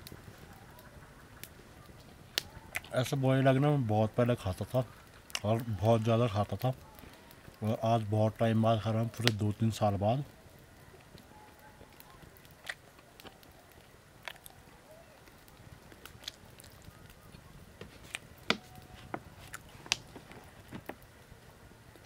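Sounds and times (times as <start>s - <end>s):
quiet chewing: 0.0s - 3.0s, 4.9s - 5.7s, 10.8s - 21.1s.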